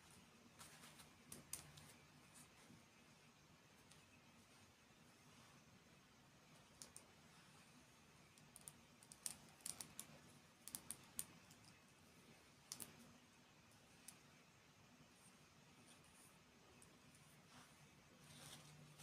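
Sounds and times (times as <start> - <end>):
light sharp clicks and taps: 0.6 - 2.0, 6.7 - 7.1, 12.6 - 13.0.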